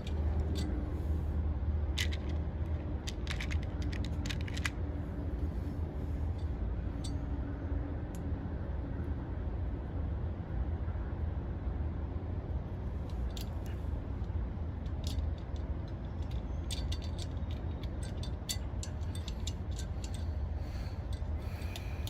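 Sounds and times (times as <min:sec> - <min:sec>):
steady low rumble: 0:00.0 - 0:22.0
small metallic clicks from handling wires: 0:13.1 - 0:20.4.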